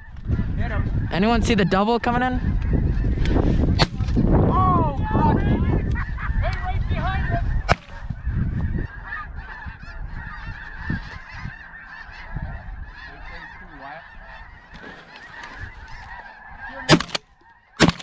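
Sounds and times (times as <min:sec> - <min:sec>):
flock of geese honking: 0:05.6 - 0:16.9.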